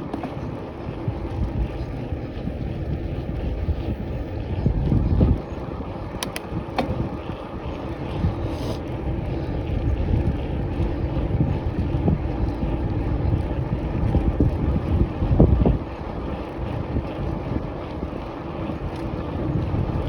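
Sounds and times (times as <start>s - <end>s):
wind buffeting microphone: 0.0s - 20.0s
sharp clicks: 6.1s - 6.6s.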